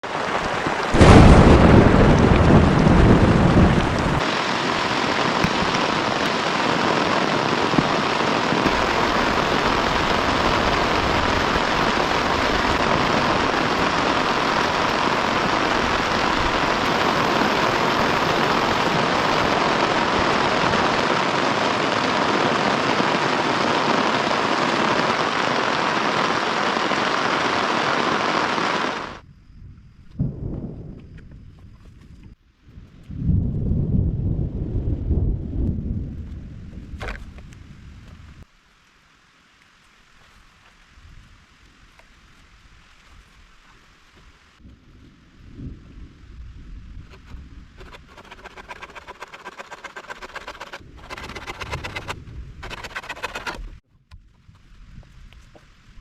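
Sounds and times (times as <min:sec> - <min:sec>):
heavy rain falling: 0:00.0 - 0:29.2
thunderclap rumbling: 0:00.2 - 0:26.1, 0:33.2 - 0:38.4.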